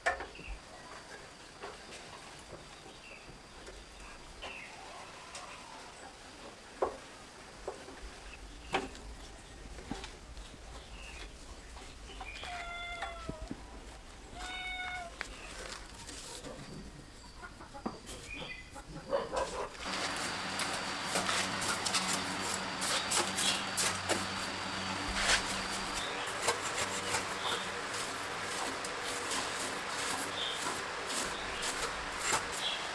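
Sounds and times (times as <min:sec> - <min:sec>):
chicken calls: 0:17.4 - 0:32.9
steady noise with clicks and rattles: 0:19.8 - 0:32.9.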